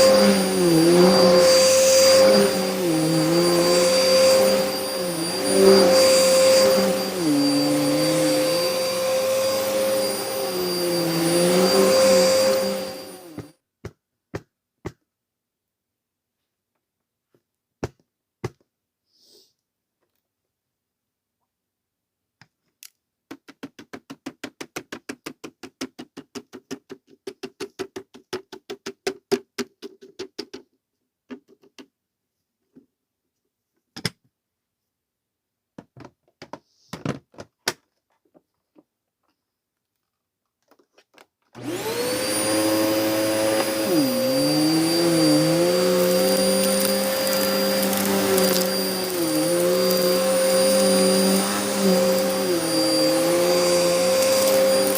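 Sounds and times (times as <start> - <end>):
vacuum cleaner whining: 0.0 - 13.6, 41.6 - 54.9.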